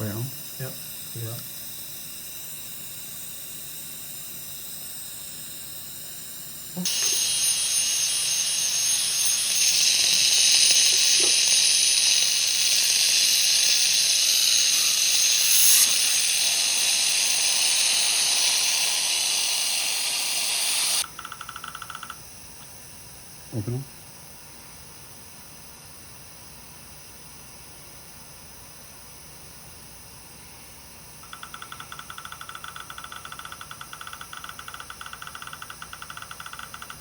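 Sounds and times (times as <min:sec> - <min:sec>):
dental equipment air hiss: 0:06.8 - 0:21.1.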